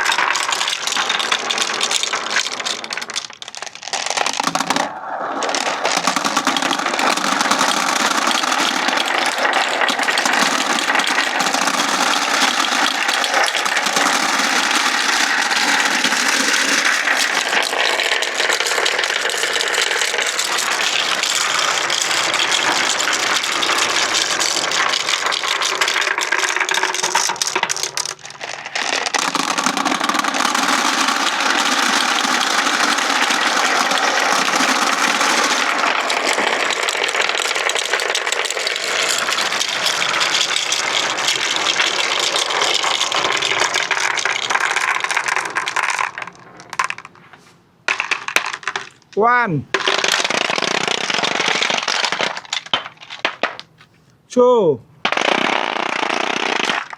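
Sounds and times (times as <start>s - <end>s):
marbles rolling down wooden ramps: 0.0s - 54.1s, 55.0s - 56.9s.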